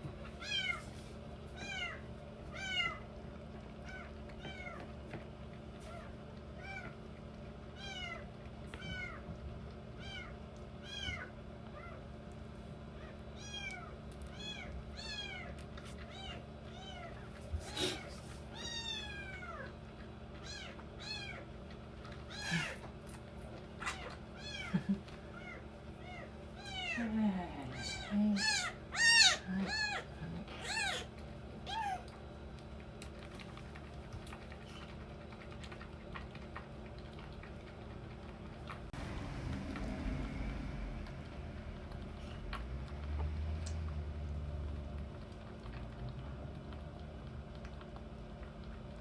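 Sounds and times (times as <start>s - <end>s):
kittens mewing: 22.3s - 22.9s, 27.7s - 31.1s
low rumbling noise: 38.8s - 45.1s.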